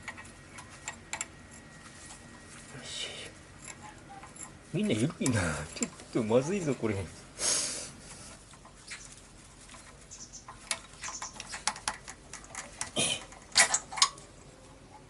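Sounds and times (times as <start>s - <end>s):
metal parts clicking and tapping: 0.0s - 1.7s, 3.6s - 6.9s, 9.8s - 14.3s.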